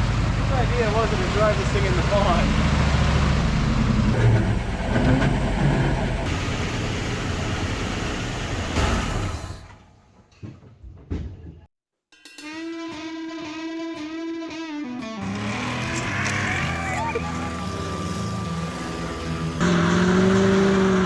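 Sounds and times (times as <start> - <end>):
heavy vehicle engine running: 0.0 - 10.0.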